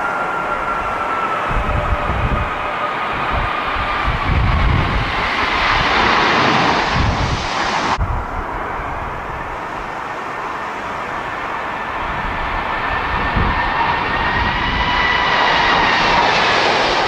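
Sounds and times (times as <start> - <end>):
jet engines whining: 0.0 - 17.0
wind rumbling on microphone: 0.0 - 17.0.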